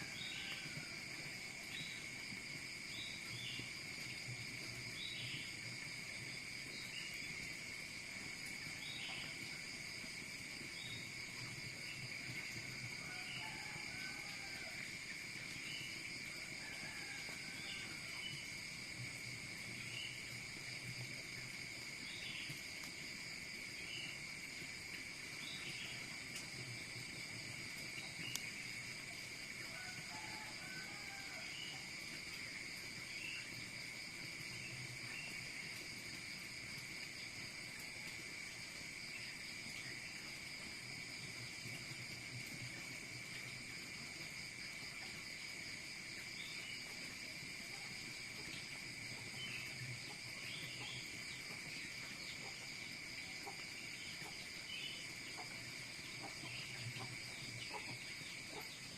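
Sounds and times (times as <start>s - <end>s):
insect chorus trilling: 0.0s - 58.9s
faint click: 28.3s - 28.5s.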